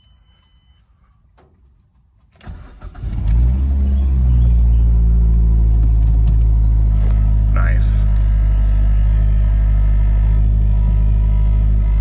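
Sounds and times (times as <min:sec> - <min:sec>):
car engine revving and idling: 0:02.4 - 0:12.0.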